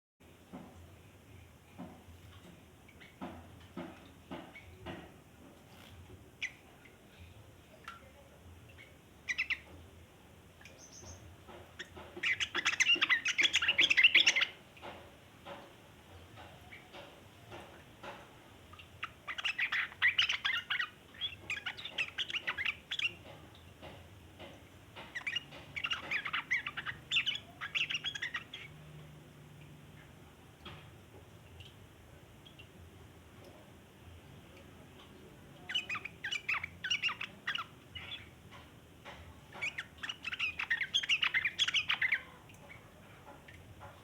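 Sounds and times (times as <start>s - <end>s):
bird chattering: 8.8s - 9.7s, 10.7s - 14.6s, 18.7s - 24.0s, 25.0s - 28.7s, 35.6s - 38.4s, 39.5s - 43.6s.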